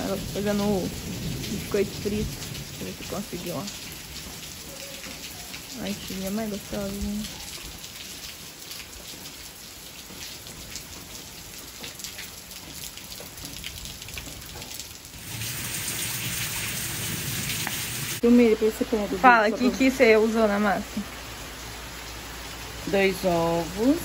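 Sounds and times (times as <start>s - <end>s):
loud rain hiss: 0.0s - 7.2s, 15.1s - 24.0s
light rain pattering: 0.0s - 24.0s.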